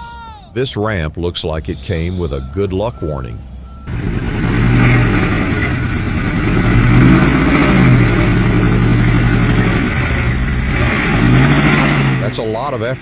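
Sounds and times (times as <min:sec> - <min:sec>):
truck engine revving hard: 0:03.8 - 0:13.0.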